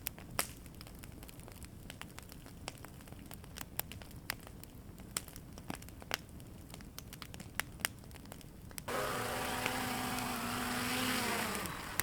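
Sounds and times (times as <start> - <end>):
campfire crackling: 0.0 - 12.0
wood pops: 8.9 - 12.0.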